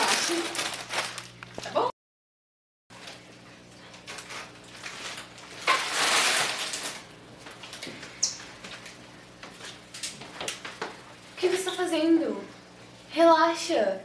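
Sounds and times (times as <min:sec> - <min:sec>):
plastic bags crinkling: 0:00.0 - 0:01.9, 0:03.0 - 0:10.7.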